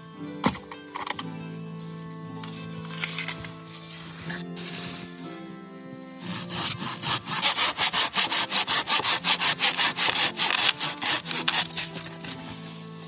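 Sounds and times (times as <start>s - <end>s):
hand saw cutting wood: 1.9s - 5.3s, 6.0s - 13.0s.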